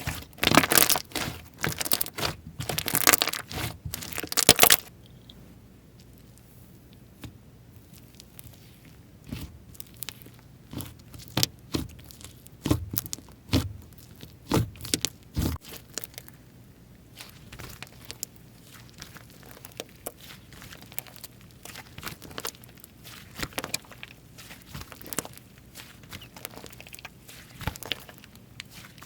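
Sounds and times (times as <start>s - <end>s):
slime clicking and popping: 0.4s - 4.9s.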